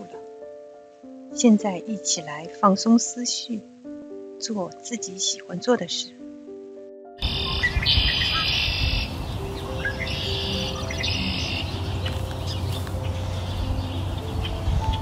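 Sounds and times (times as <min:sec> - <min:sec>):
soft music with sustained notes: 0:00.0 - 0:15.0
birds chirping and trilling: 0:07.2 - 0:15.0
steady low rush: 0:07.2 - 0:15.0.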